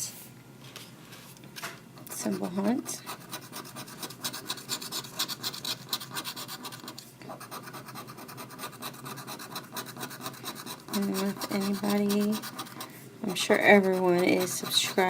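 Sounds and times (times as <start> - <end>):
scratching lottery ticket: 2.1 - 15.0.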